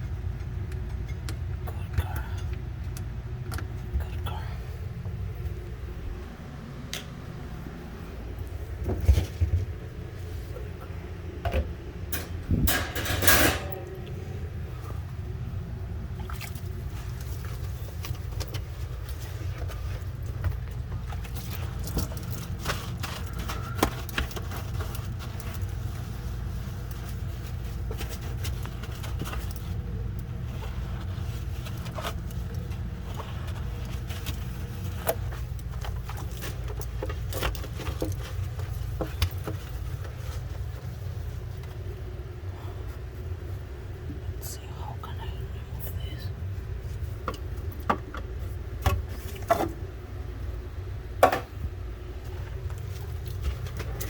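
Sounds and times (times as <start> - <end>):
steady low hum: 0.0 - 54.0
plastic shelves clicking and rattling: 17.9 - 25.7.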